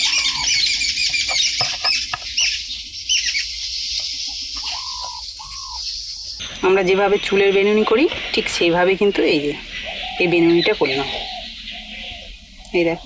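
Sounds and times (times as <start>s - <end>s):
bird call dropping in pitch: 0.0s - 2.6s
birds chirping and twittering: 0.0s - 13.0s.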